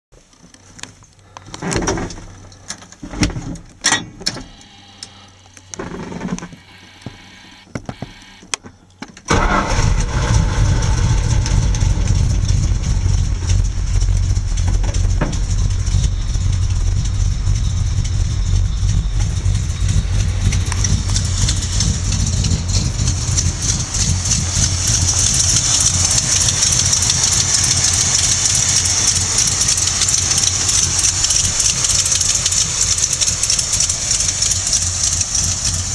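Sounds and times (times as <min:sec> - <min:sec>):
pickup engine starting and idling: 0:09.2 - 0:35.9.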